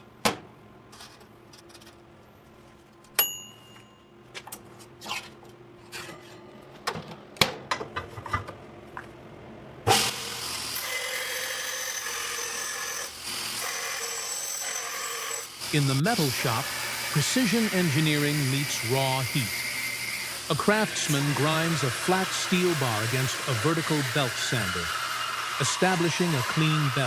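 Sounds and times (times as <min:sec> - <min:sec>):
power grinder grinding metal: 0:09.9 - 0:27.0.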